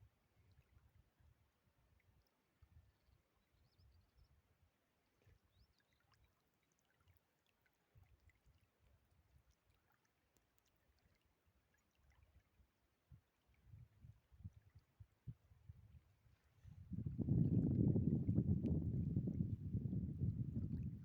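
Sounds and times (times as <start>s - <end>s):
faint high chirps and ticks: 0.4s - 15.4s
faint low rumbling: 16.6s - 21.0s.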